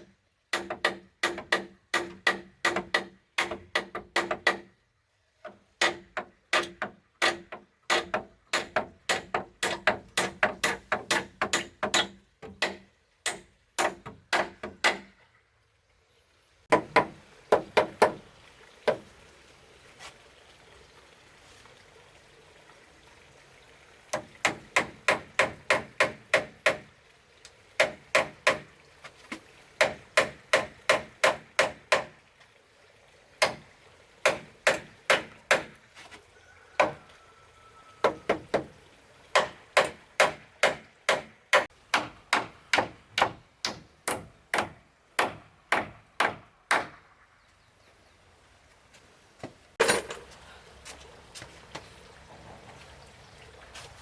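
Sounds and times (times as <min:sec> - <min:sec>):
hammer striking wood: 0:00.5 - 0:04.7, 0:05.8 - 0:15.1, 0:16.7 - 0:18.2, 0:24.2 - 0:26.9, 0:27.8 - 0:28.7, 0:29.8 - 0:32.2, 0:33.4 - 0:33.6, 0:34.2 - 0:35.8, 0:36.8 - 0:37.0, 0:39.4 - 0:47.0.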